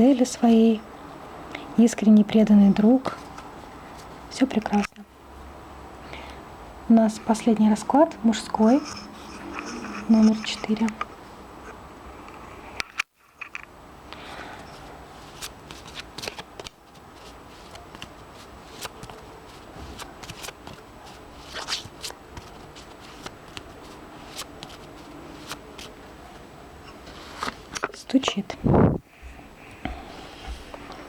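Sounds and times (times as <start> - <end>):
cards being shuffled: 14.7 - 26.4, 27.0 - 27.9.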